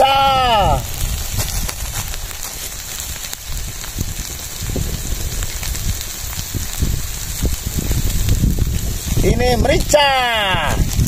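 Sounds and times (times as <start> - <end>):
faint fire crackles: 0.0 - 11.0
food sizzling in a wok: 0.0 - 11.0.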